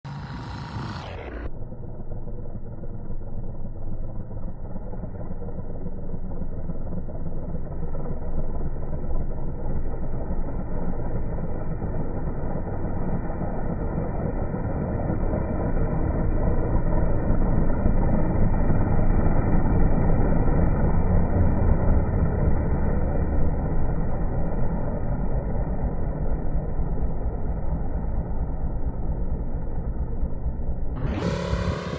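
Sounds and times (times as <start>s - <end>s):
model aeroplane engine drone: 0.0s - 31.9s.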